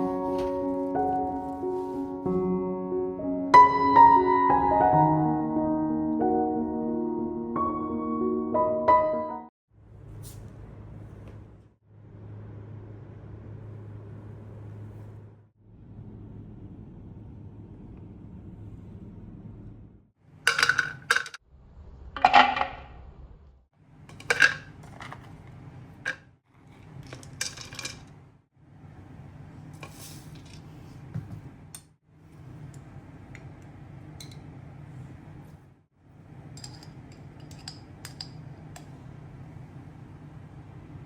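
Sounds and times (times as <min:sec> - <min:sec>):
steady low hum: 0:09.8 - 0:20.1
dishes and cutlery clinking: 0:24.1 - 0:25.3, 0:36.6 - 0:38.4.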